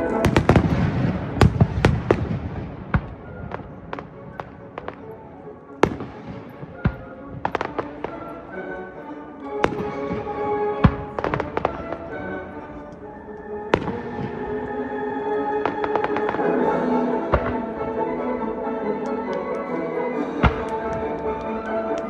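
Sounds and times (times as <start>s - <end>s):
fireworks bursting: 0.0s - 8.4s, 9.6s - 12.6s, 13.7s - 14.8s, 15.5s - 18.0s, 20.4s - 22.0s.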